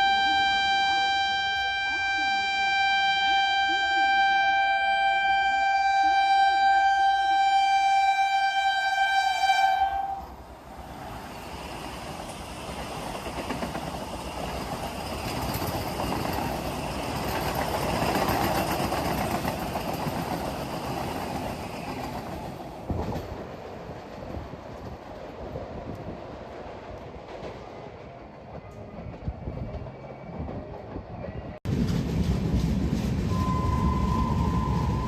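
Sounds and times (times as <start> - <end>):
train horn: 0.0 - 10.4, 33.3 - 35.0
train passing with wheel clatter: 0.0 - 35.0.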